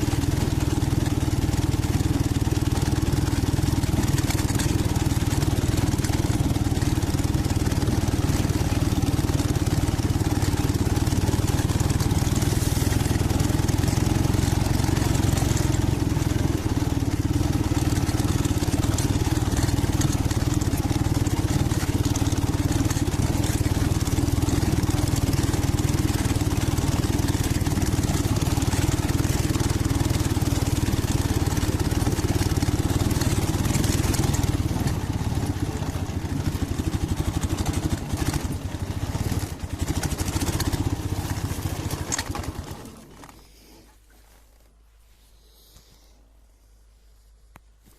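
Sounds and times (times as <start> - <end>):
motorcycle engine running: 0.0 - 43.4.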